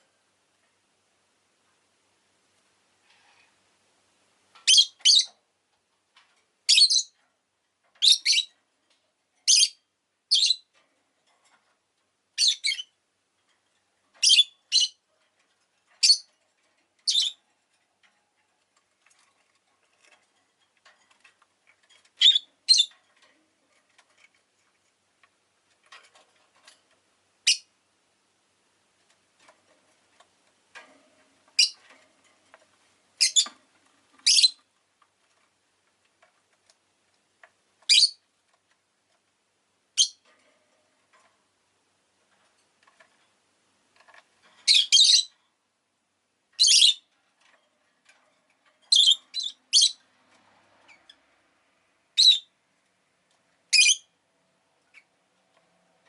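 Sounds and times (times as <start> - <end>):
lovebird shrill calls: 4.6 - 5.3, 14.2 - 15.0, 17.1 - 17.4, 22.2 - 22.9, 34.2 - 34.6, 44.7 - 45.3, 52.2 - 52.5, 53.7 - 54.1.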